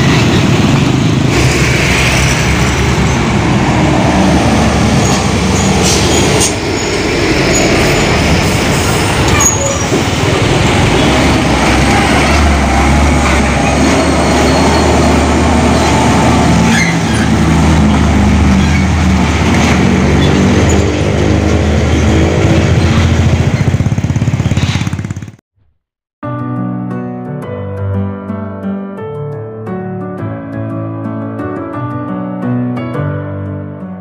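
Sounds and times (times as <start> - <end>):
diesel truck engine under load: 0.0 - 25.4
music: 26.2 - 34.0.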